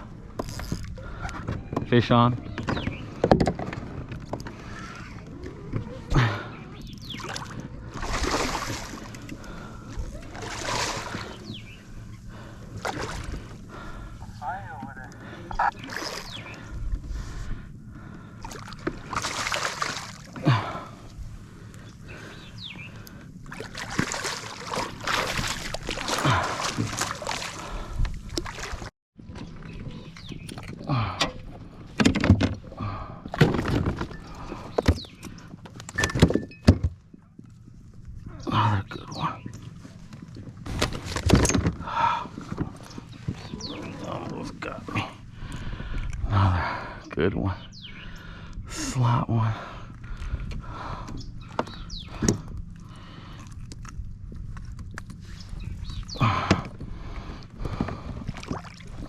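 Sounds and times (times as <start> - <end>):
knocks and clatter on hull: 1.4 - 4.5, 30.5 - 37.2
water splashing at a kayak: 2.6 - 14.4, 15.3 - 35.4, 50.0 - 59.0.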